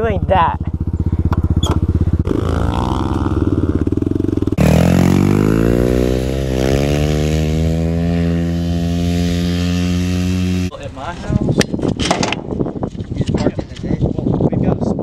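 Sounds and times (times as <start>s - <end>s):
dirt bike engines revving: 0.0s - 11.4s.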